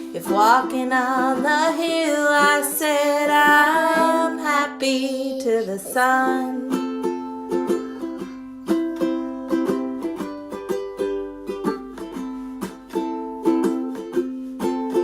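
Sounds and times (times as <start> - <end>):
plucked string instrument music: 0.0 - 15.0.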